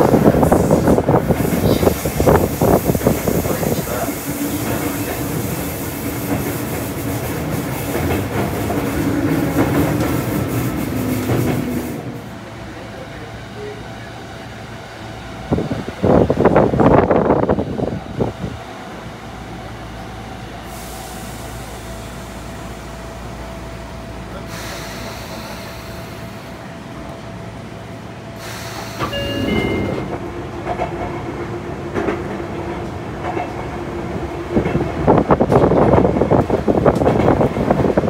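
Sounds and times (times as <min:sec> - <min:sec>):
train interior rumble: 0:00.0 - 0:38.0.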